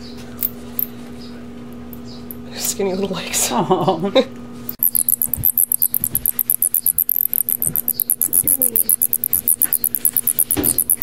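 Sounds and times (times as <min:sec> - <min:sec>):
bat squeaking: 0:04.8 - 0:11.0.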